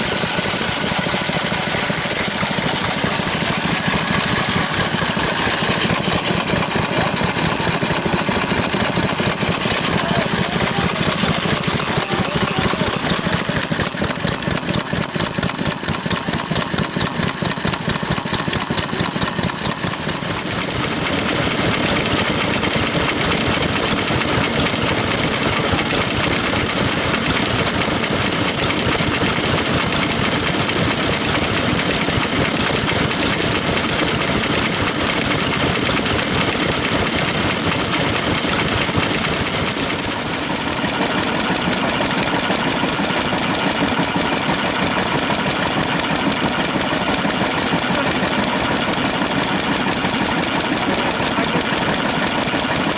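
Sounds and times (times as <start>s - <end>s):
stationary engines knocking: 0.0s - 52.9s.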